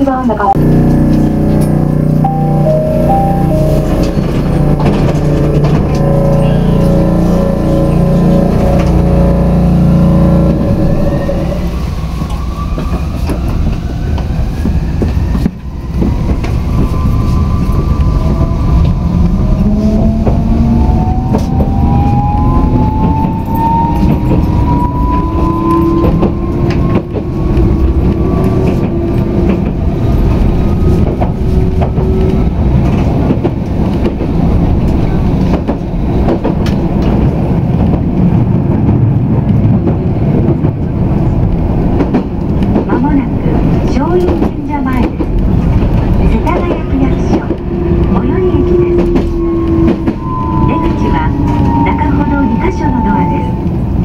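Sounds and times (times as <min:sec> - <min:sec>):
light-rail car rumbling on track: 0:00.0 - 0:54.0
traction motor whine rising: 0:00.6 - 0:13.1, 0:16.6 - 0:32.5.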